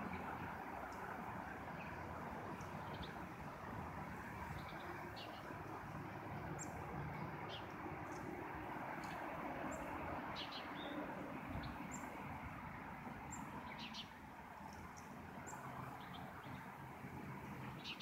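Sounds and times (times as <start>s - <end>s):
small birds chirping: 2.6s - 3.2s, 4.4s - 5.7s, 6.5s - 8.4s, 9.0s - 12.2s, 13.3s - 16.7s, 17.6s - 18.0s.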